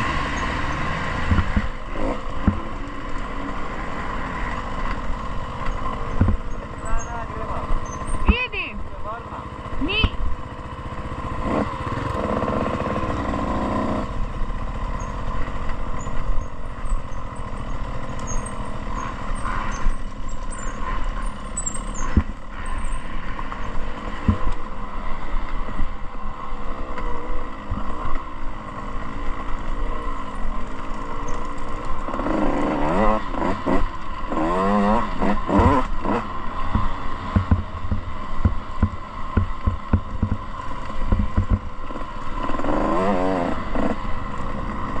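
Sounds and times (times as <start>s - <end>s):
dirt bike engine running: 0.0s - 45.0s
bike knocks and rattles: 1.2s - 2.8s, 5.5s - 7.2s, 21.4s - 22.9s, 23.5s - 24.6s, 35.2s - 42.0s.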